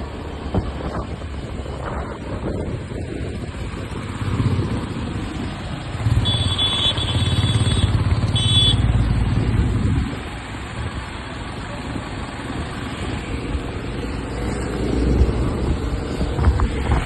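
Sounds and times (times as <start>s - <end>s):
road and wind noise: 0.0s - 17.0s
motorcycle engine running: 3.6s - 12.9s.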